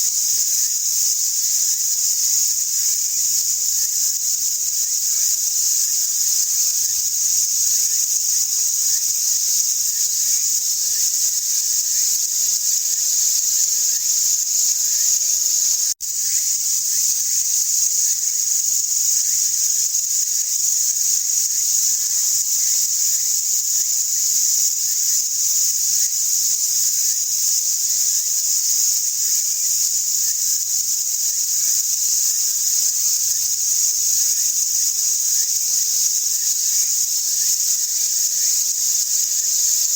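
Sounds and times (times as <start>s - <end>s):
insects chorus drone: 0.0s - 39.9s.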